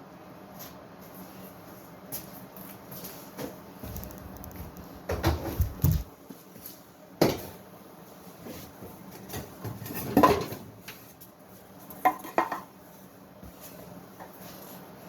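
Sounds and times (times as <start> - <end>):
rustling: 3.8 - 6.1
sharp knocks and clatters: 3.9 - 6.1.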